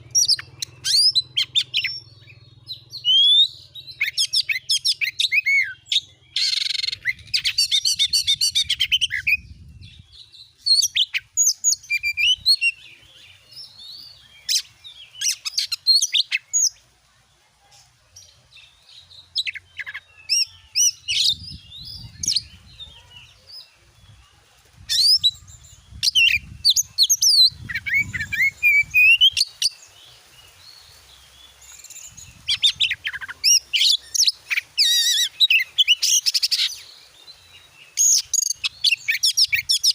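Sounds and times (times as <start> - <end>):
bird singing whistles and trills: 0.0 - 16.8, 24.8 - 29.9, 31.6 - 37.0, 37.6 - 39.9.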